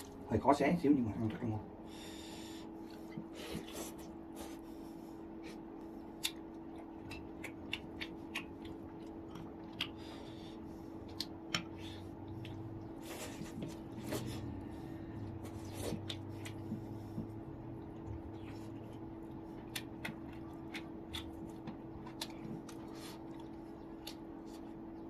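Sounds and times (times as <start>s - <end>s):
steady low hum: 0.0s - 25.0s
person chewing food: 1.9s - 25.0s.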